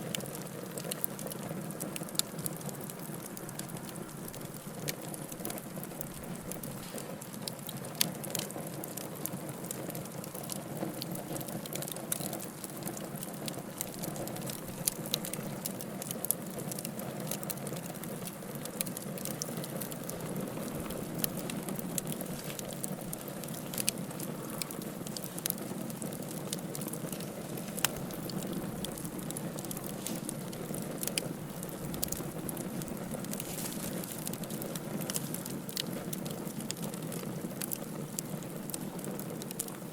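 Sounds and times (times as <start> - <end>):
logs crackling and popping: 0.0 - 39.9
fire flames rushing: 10.0 - 39.8.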